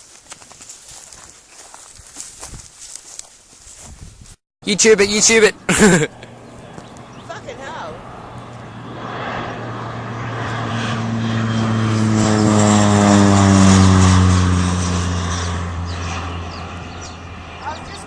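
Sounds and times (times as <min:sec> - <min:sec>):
propeller aircraft flying overhead: 0:04.6 - 0:18.0.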